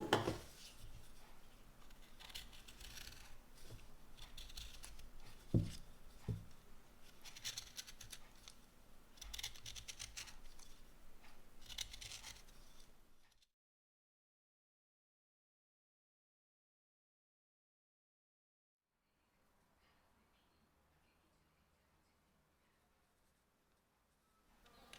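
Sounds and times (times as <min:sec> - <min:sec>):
soft knocks: 0:00.0 - 0:00.5
knife scraping wood: 0:00.0 - 0:08.6, 0:09.2 - 0:13.4.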